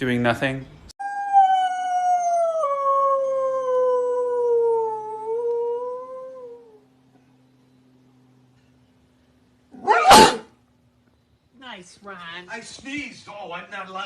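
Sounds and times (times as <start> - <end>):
dog howling: 1.0 - 6.9, 9.8 - 10.5.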